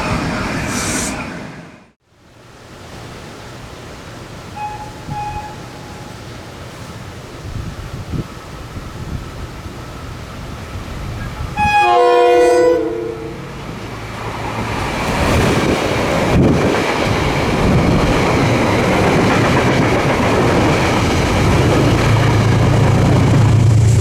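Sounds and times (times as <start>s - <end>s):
train rumble and wheel noise: 0.0s - 2.0s, 2.8s - 24.0s
train horn blast: 4.6s - 6.2s, 11.6s - 13.6s.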